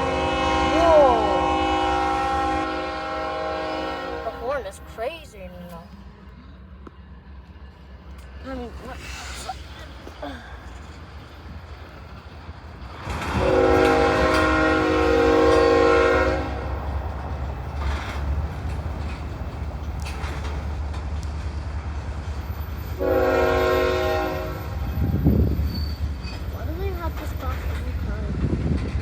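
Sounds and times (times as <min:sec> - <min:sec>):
locomotive air horn blasts: 0:00.0 - 0:04.6, 0:13.4 - 0:16.8, 0:23.0 - 0:24.8
train rumbling: 0:00.0 - 0:29.0.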